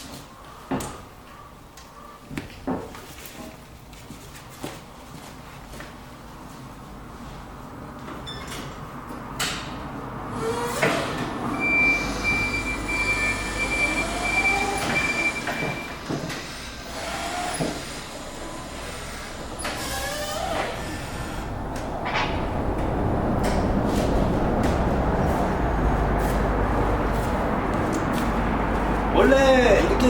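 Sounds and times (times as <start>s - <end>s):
squealing sliding tones: 10.4s - 16.0s, 18.9s - 21.5s
metal knocks and clunks: 21.9s - 23.8s.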